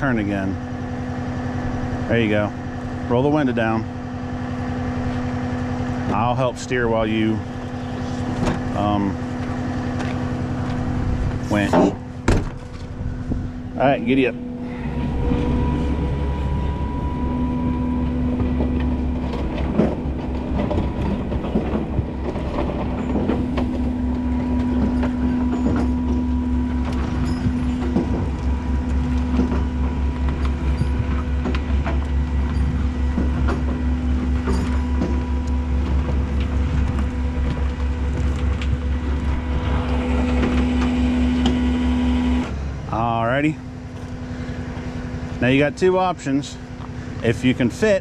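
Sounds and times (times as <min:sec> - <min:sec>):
hydraulic pump whine: 0:00.0 - 0:48.0
truck engine low drone: 0:00.0 - 0:48.0
metallic clanks and rattles: 0:14.2 - 0:41.6.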